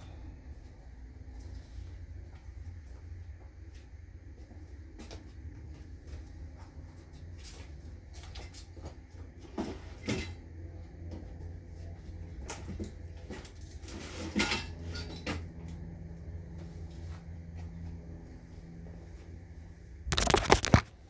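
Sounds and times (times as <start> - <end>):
objects knocking and scraping: 20.1 - 21.0.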